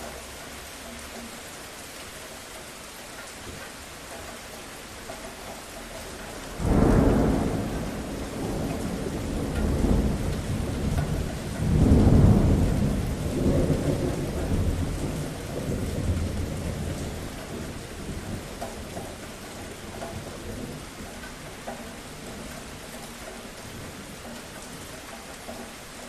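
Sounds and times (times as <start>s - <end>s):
steady rain: 0.0s - 26.0s
rolling thunder: 6.6s - 19.0s.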